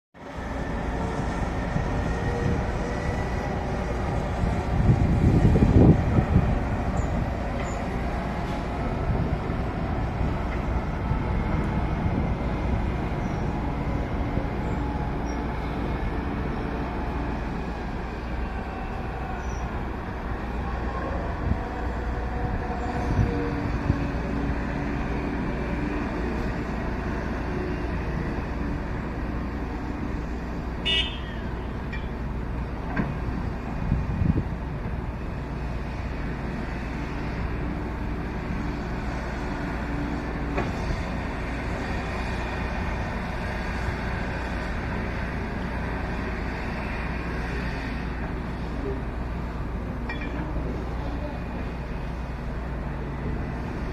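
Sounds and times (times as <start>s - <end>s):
truck engine rumbling: 0.2s - 53.9s
vehicle horn toot: 30.8s - 31.4s.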